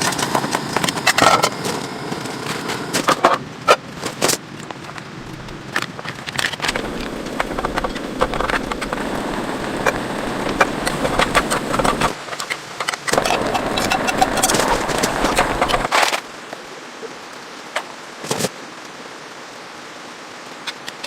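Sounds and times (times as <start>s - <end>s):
rain pattering on plastic sheeting: 0.0s - 21.0s.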